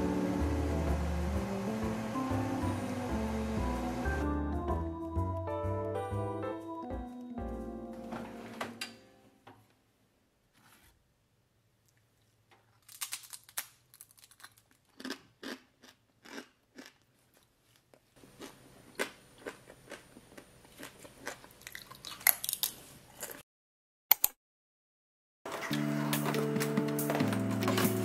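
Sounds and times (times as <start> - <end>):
chewing crunchy food: 12.9 - 23.4
sharp click: 24.1 - 24.4.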